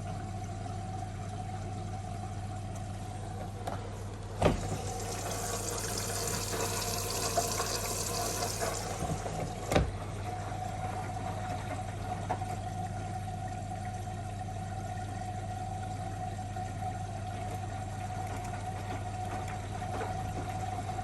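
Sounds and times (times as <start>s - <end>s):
washing machine humming: 0.0s - 21.0s
water hissing in: 4.6s - 9.3s.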